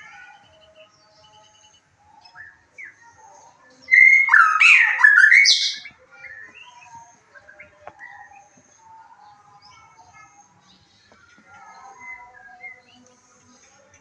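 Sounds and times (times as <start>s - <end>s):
bird twittering: 3.8s - 8.4s
bird whistling with chatter: 3.9s - 5.9s.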